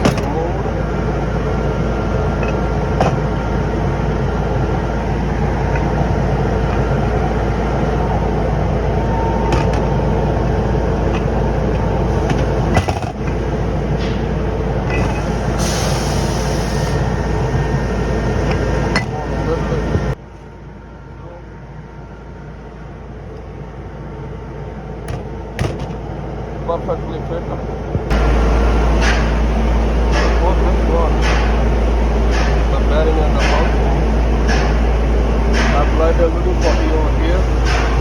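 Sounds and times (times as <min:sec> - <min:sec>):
workshop machinery droning: 0:00.0 - 0:38.0
sharp metal knocks: 0:29.0 - 0:38.0.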